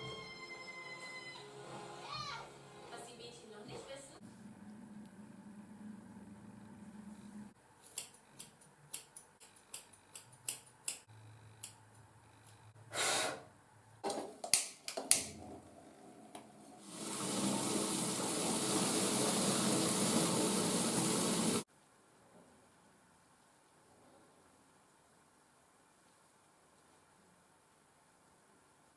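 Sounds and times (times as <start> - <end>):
water running from a tap: 16.8 - 21.6.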